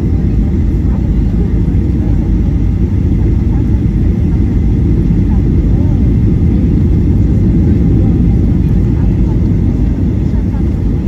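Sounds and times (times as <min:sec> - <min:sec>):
jet engine roar inside cabin: 0:00.0 - 0:11.0.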